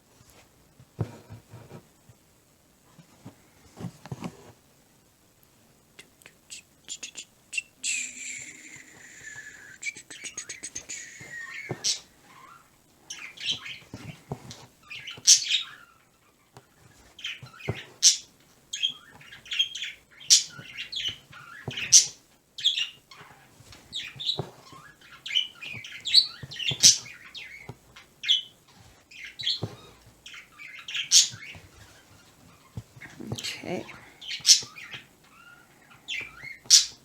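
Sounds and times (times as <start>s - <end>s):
bird chirping and calling: 7.6s - 13.9s, 14.9s - 16.0s, 17.2s - 23.0s, 23.9s - 32.2s, 33.2s - 37.0s.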